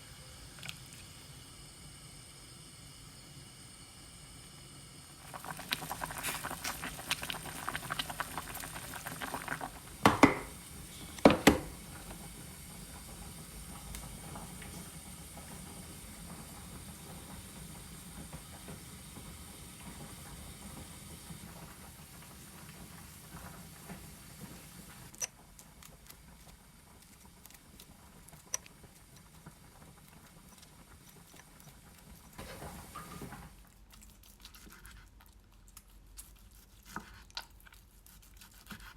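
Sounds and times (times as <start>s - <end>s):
crackling and bubbling cooking: 0.0s - 38.9s
loud sharp clunks: 11.2s - 11.8s.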